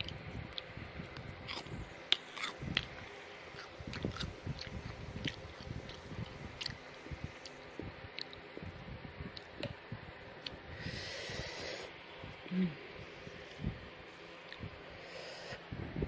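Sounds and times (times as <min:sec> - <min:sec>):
person chewing and crunching food: 0:00.0 - 0:08.6.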